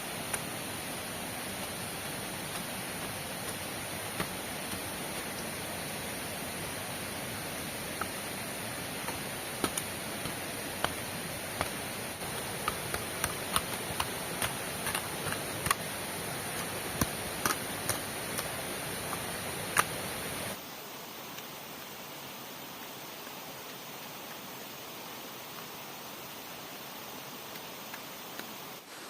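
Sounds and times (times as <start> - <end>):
heavy rain hissing: 0.0 - 29.0
sharp ticks and taps: 9.1 - 15.9, 16.6 - 18.5.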